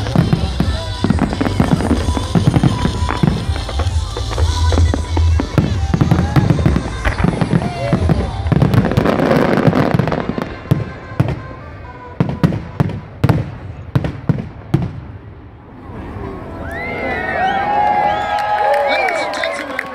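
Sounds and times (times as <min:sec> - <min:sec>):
fireworks banging: 0:00.0 - 0:15.4.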